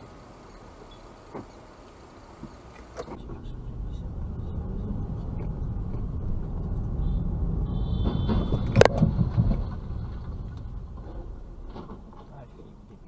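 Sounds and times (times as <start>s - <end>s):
road and engine rumble: 0.0s - 13.0s
vehicle collision bang: 5.3s - 12.3s.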